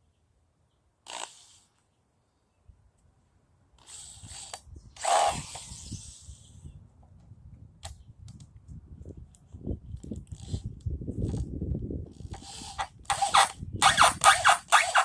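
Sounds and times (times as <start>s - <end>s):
small mechanical tool running: 3.8s - 6.4s, 12.2s - 15.0s.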